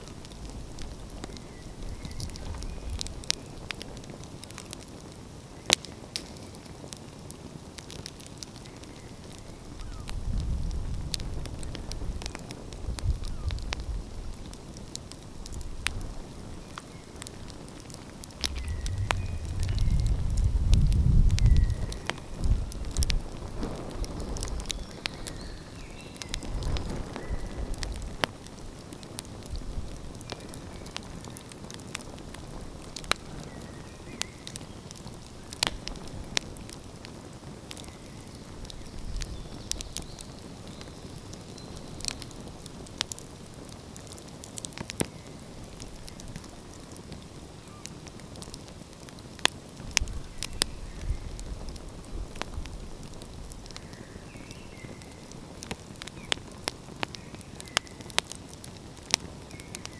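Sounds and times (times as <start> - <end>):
wood fire crackling: 0.0 - 59.9
low rumble: 18.4 - 22.7.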